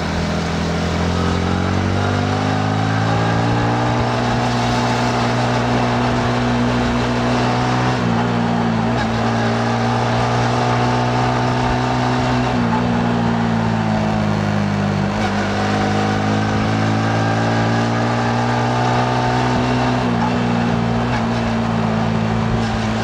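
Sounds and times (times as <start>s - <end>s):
motorcycle engine running: 0.0s - 11.8s, 20.1s - 23.0s
road noise: 0.0s - 23.0s.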